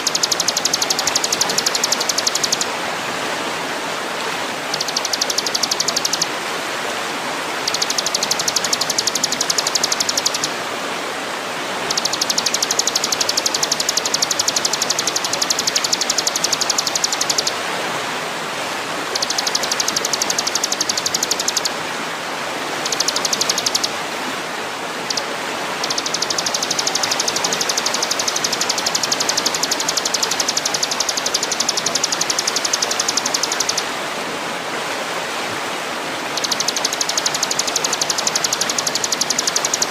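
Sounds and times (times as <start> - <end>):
songbird high trill: 0.0 - 2.7, 4.7 - 6.3, 7.6 - 10.5, 11.9 - 17.5, 19.1 - 21.7, 22.8 - 23.9, 25.1 - 33.8, 36.3 - 39.9.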